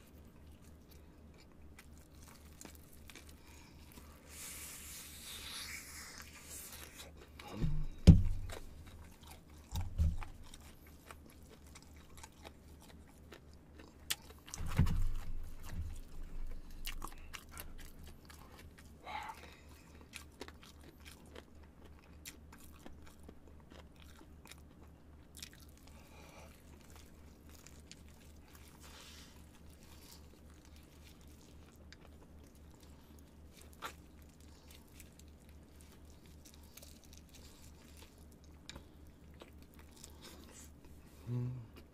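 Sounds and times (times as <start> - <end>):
crunching fried chicken: 0.1 - 7.6, 8.3 - 41.0
low thumps: 7.5 - 8.6.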